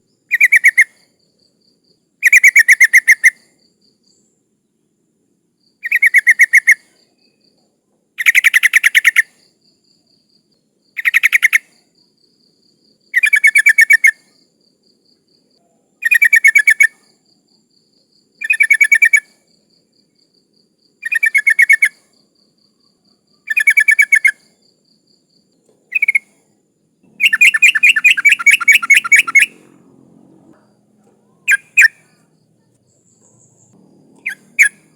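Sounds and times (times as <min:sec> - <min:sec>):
bird calling with chattering notes: 0:00.0 - 0:01.0, 0:05.8 - 0:06.8, 0:08.2 - 0:09.3, 0:11.0 - 0:11.7, 0:13.2 - 0:14.2, 0:16.0 - 0:17.0, 0:21.0 - 0:22.0, 0:23.4 - 0:24.5, 0:25.9 - 0:26.4, 0:27.0 - 0:34.9.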